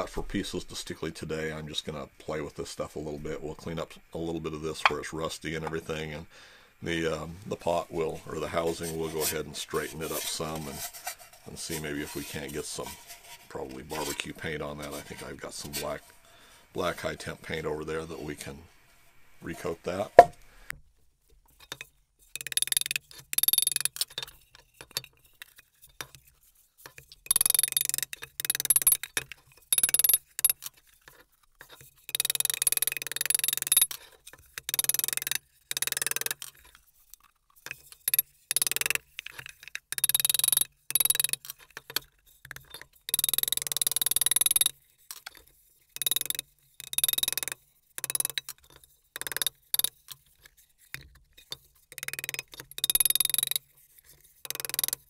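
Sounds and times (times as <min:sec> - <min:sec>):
hammer tapping sheet steel: 0:19.6 - 0:20.4.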